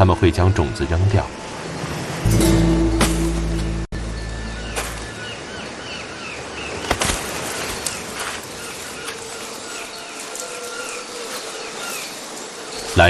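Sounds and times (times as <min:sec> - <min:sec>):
insect hiss: 0:06.8 - 0:13.0.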